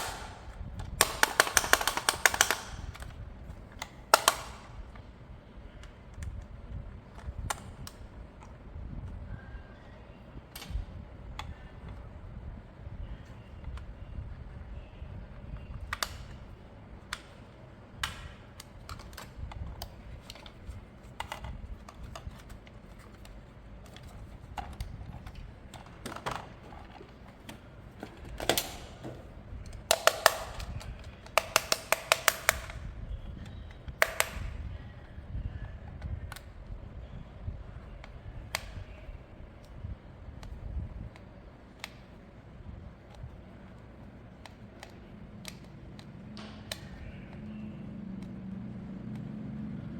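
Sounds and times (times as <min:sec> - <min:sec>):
plastic toy parts clicking: 0:00.0 - 0:03.2, 0:03.8 - 0:04.9, 0:15.8 - 0:16.4, 0:18.0 - 0:29.0, 0:29.6 - 0:34.6, 0:40.4 - 0:42.2, 0:44.4 - 0:47.5.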